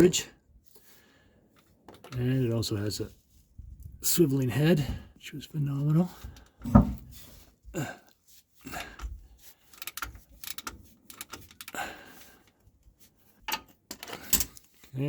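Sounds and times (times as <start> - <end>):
ratcheting wrench clicking: 9.7 - 11.8.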